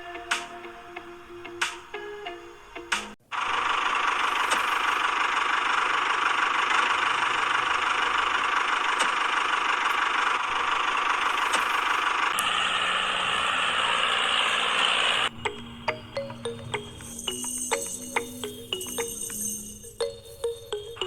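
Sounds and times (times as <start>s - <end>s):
small motor whirring: 3.3s - 15.3s.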